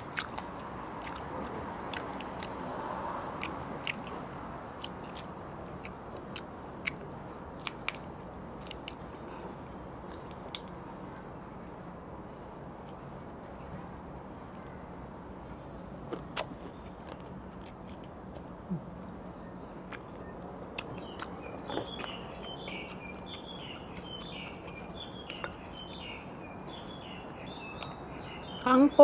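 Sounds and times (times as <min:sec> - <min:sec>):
outdoor background noise: 0:00.0 - 0:29.0
clicks and taps of eating: 0:03.4 - 0:09.0
bird chirping: 0:19.3 - 0:29.0.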